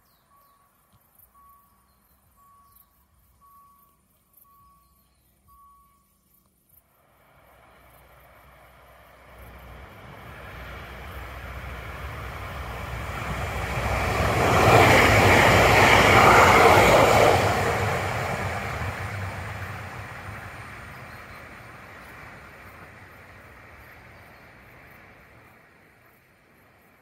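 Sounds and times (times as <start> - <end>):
electric train passing: 7.0 - 27.0.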